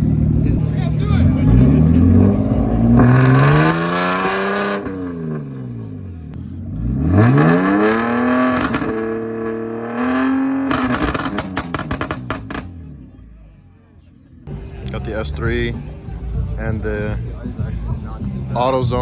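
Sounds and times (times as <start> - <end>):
car engine revving: 0.0 - 13.2
exhaust pops and crackles: 7.8 - 12.8.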